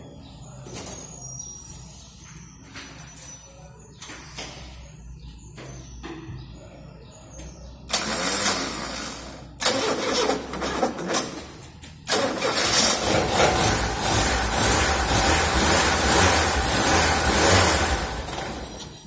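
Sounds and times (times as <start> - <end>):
starter motor cranking: 7.9 - 11.4, 12.1 - 19.0
car engine running: 12.4 - 19.0.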